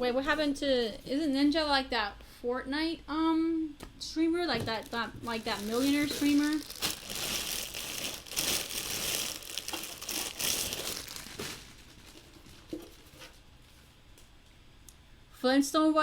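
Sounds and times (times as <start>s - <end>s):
crinkling and rustling: 4.5s - 13.9s.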